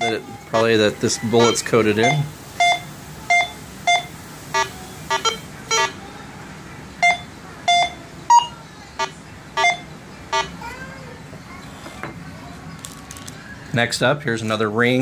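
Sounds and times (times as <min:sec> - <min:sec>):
metal detector beeping: 0:01.4 - 0:06.0, 0:07.0 - 0:10.5.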